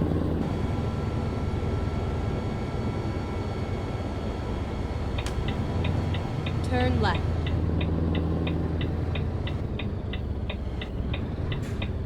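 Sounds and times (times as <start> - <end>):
road noise: 0.0 - 12.0
truck engine droning: 0.0 - 12.0
turn signal ticking: 5.2 - 12.0.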